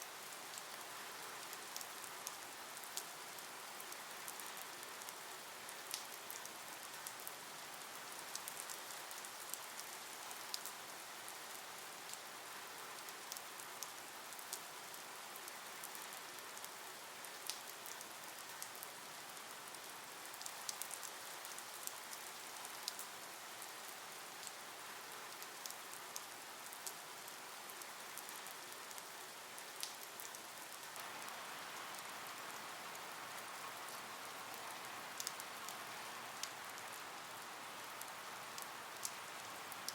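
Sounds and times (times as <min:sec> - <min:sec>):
light rain hissing: 0:00.0 - 0:39.9
raindrop ticks: 0:03.9 - 0:07.4, 0:08.2 - 0:10.8, 0:15.4 - 0:22.0, 0:22.8 - 0:23.1, 0:27.8 - 0:35.8, 0:36.4 - 0:37.0, 0:37.9 - 0:39.9.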